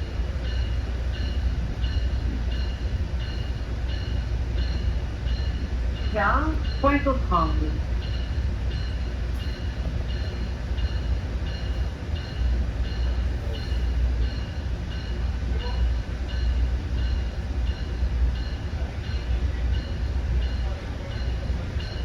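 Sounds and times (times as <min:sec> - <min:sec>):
train low rumble: 0:00.0 - 0:22.0.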